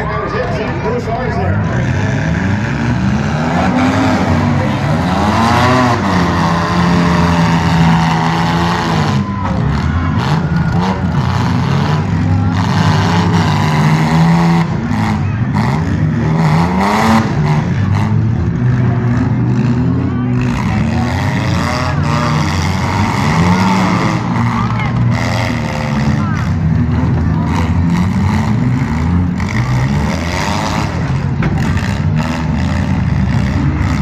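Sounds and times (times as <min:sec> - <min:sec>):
car engines revving: 0:00.0 - 0:34.0
cars ramming thuds: 0:30.6 - 0:33.0.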